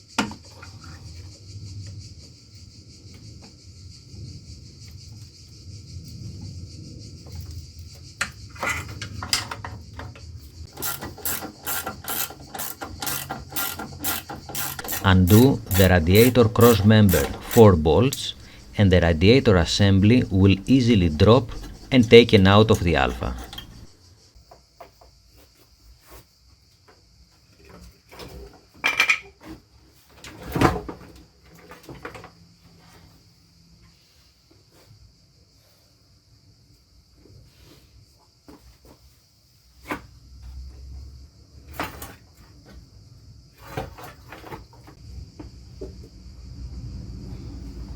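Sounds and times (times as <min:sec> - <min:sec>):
ratchet wrench clicking: 0:10.7 - 0:17.6
metal parts clattering: 0:10.7 - 0:18.7, 0:21.1 - 0:23.9.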